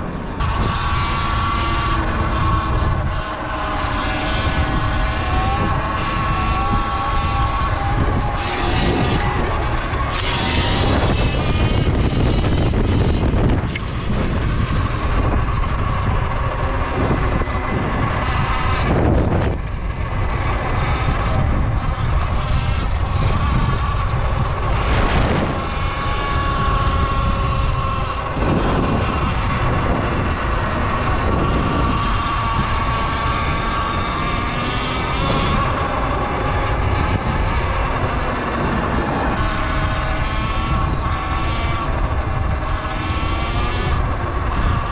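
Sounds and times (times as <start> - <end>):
electric motor high whine: 0.0 - 44.9
wind buffeting microphone: 0.0 - 44.9.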